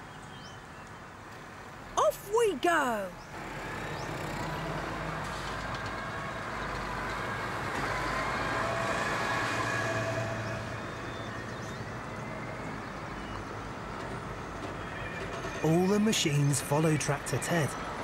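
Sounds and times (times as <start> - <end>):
tractor engines running: 3.4 - 9.9.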